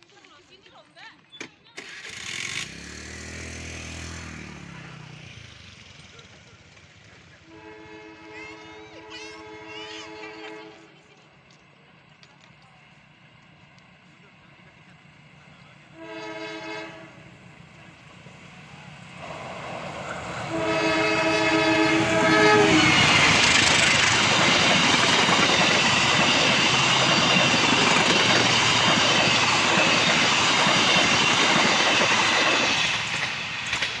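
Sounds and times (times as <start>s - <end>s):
train wheels rumbling on rails: 1.8s - 34.0s
locomotive horn blasts: 7.4s - 10.9s, 15.9s - 17.2s, 20.4s - 23.6s.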